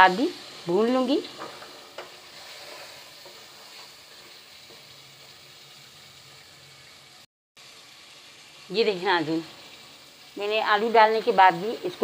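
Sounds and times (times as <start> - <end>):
food sizzling in oil: 0.0 - 12.0
spatula stirring pot: 1.3 - 5.4.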